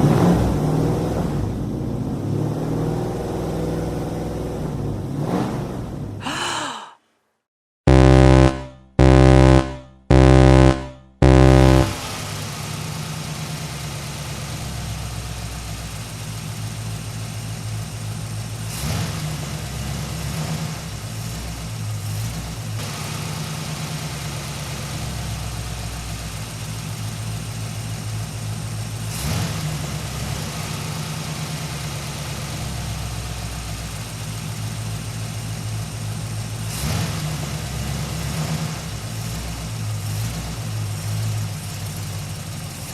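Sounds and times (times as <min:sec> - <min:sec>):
horn honks: 0:07.9 - 0:12.2
vehicle engine idling: 0:09.0 - 0:42.9.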